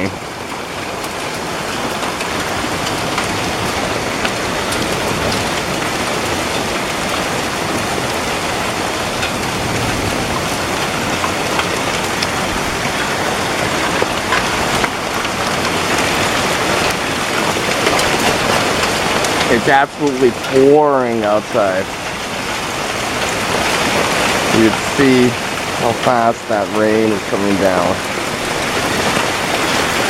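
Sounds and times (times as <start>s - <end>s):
heavy rain pelting the ground: 0.0s - 30.0s
sharp raindrop ticks: 0.4s - 30.0s.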